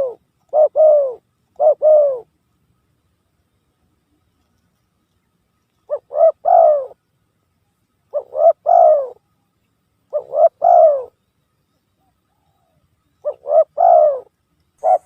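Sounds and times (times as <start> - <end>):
dove cooing: 0.0 - 2.3, 5.9 - 7.0, 8.1 - 9.3, 10.1 - 11.2, 12.0 - 15.0.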